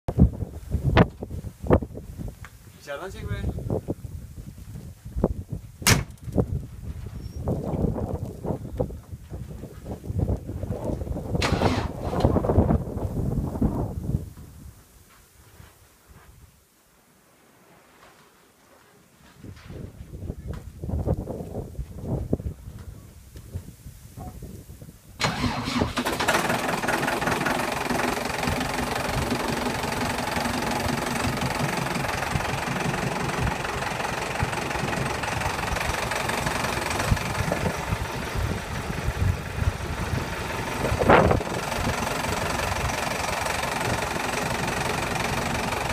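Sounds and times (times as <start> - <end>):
tractor diesel engine idling: 11.4 - 12.0, 25.2 - 45.9.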